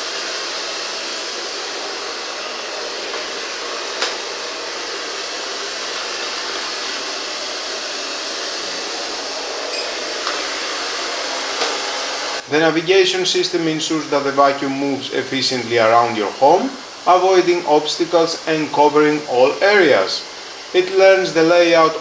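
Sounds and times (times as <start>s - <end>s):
robot vacuum cleaner whirring: 0.0s - 22.0s.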